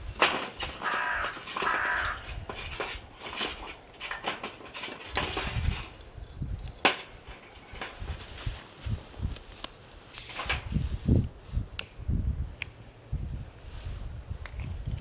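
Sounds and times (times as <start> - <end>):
clicks and knocks: 0.2 - 6.0
animal harsh call: 0.8 - 2.4.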